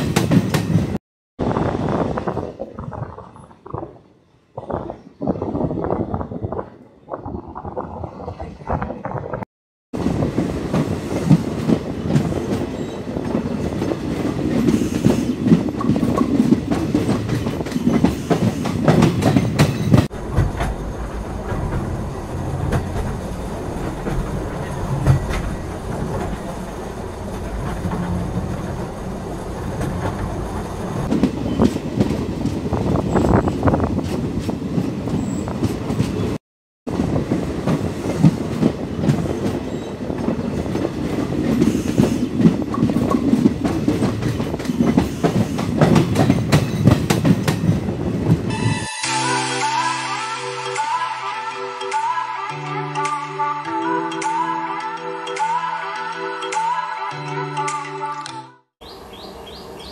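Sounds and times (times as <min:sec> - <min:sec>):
train rumbling over rail joints: 0:00.0 - 0:03.9, 0:10.0 - 0:48.5.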